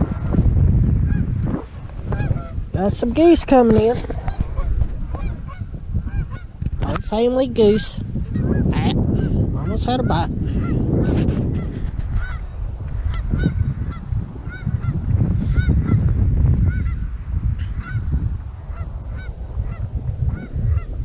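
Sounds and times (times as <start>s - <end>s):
steady low rumble: 0.0s - 21.0s
geese honking: 2.1s - 2.6s, 4.2s - 7.0s, 8.3s - 10.8s, 11.6s - 12.5s.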